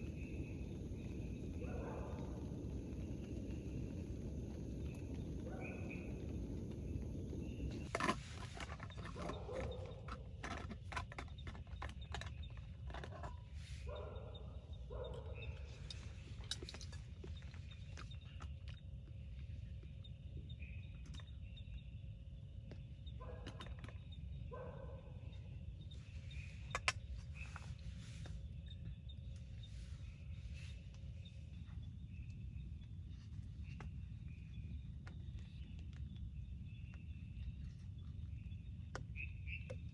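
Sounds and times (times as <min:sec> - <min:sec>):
steady rain: 0:00.0 - 0:07.9.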